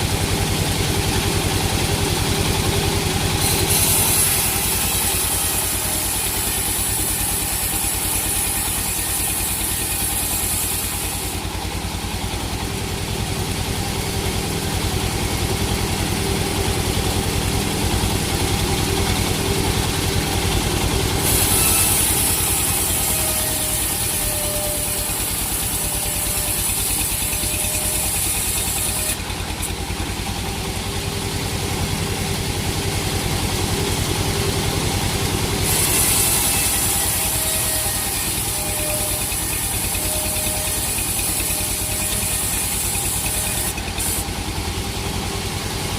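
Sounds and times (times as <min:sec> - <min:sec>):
engine running at low speed: 0:00.0 - 0:45.9.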